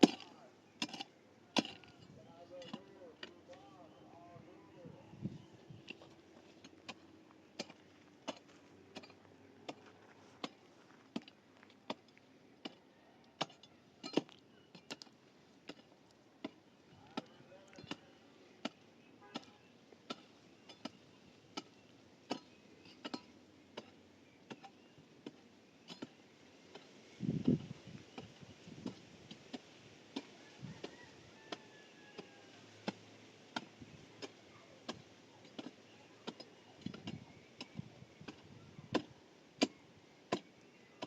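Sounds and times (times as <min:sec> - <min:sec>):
hand tool striking: 0:00.0 - 0:02.0, 0:07.6 - 0:09.8, 0:39.0 - 0:40.6.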